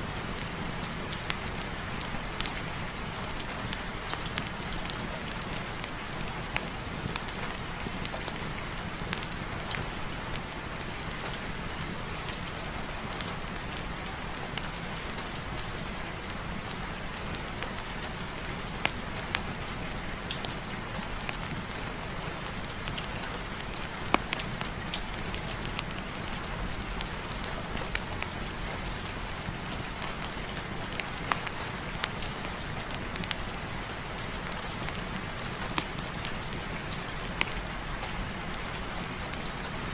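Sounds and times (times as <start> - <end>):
steady rain: 0.0 - 39.9
wood fire crackling: 22.5 - 39.7.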